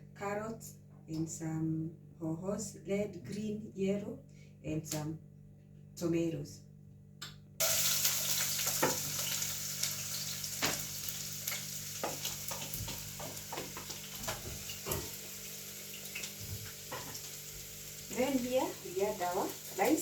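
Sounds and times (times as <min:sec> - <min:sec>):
food sizzling in hot oil: 0:07.6 - 0:20.0.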